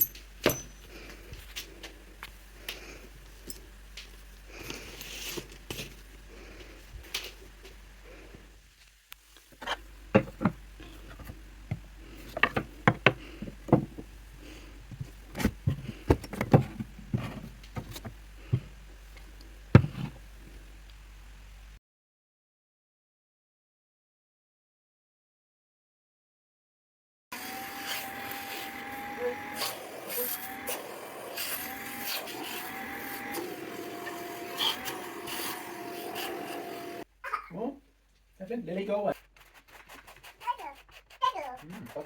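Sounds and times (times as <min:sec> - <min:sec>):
small metal clinks: 0:00.0 - 0:00.9.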